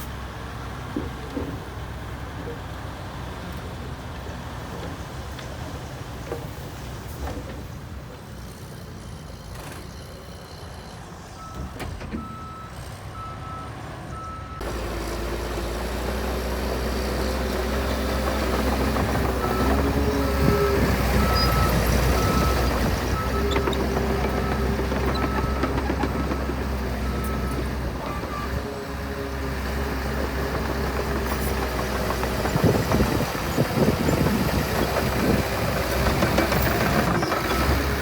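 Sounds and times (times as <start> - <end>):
diesel engine running: 13.2 - 38.0
reversing alarm beeping: 19.4 - 23.7.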